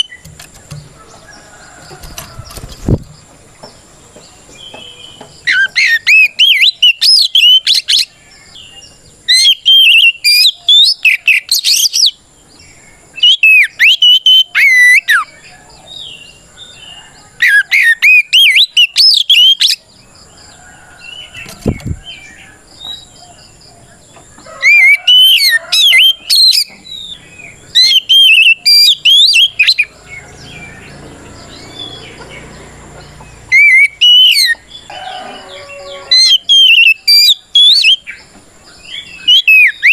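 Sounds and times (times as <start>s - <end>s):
bird singing whistled phrases: 13.2s - 15.3s, 27.8s - 29.9s, 33.5s - 34.6s, 36.1s - 38.1s, 39.2s - 39.9s.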